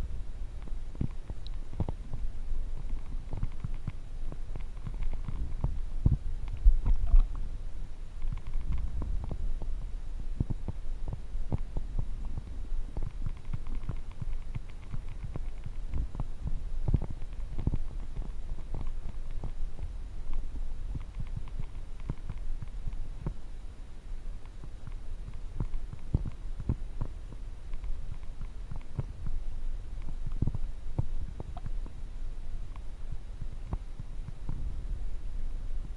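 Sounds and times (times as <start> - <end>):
muffled low thumps and rumbling: 0.0 - 23.5, 24.2 - 35.9
faint clicks: 0.6 - 2.2, 2.8 - 7.4, 8.2 - 9.8, 10.4 - 23.4, 24.4 - 32.0.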